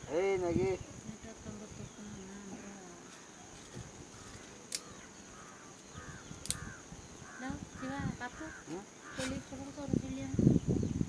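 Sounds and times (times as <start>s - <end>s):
crows cawing: 4.1s - 9.5s
sharp clicks: 5.8s - 6.7s.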